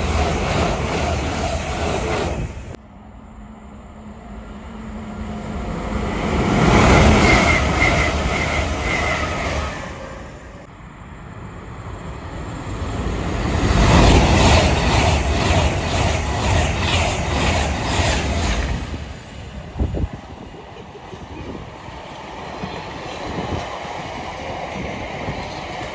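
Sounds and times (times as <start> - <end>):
trains passing at speed: 0.0 - 25.9.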